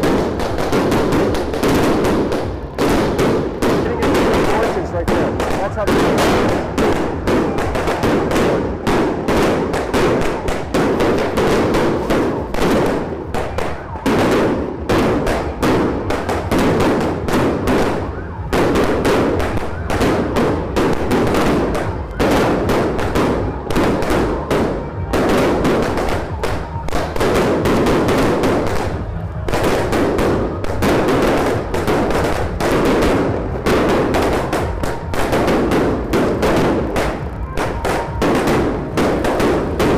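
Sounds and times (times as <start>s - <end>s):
firecrackers banging and crackling: 0.0s - 39.9s.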